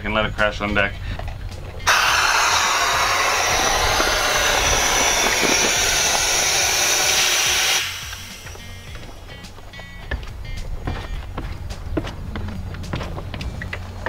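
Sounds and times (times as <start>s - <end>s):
compressed air hissing: 1.8s - 9.6s.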